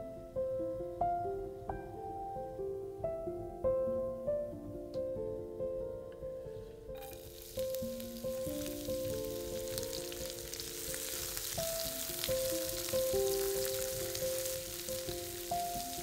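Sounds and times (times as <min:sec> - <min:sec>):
background music: 0:00.0 - 0:16.0
food sizzling in hot oil: 0:07.0 - 0:16.0.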